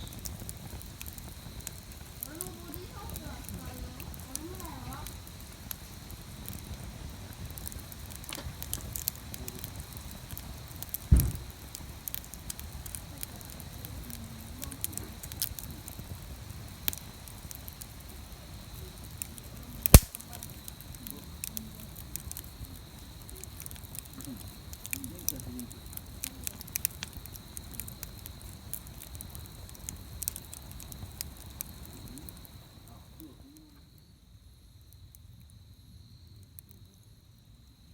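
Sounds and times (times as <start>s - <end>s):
wood fire crackling: 0.0s - 35.6s
loud sharp pop: 11.1s - 11.5s, 19.9s - 20.2s.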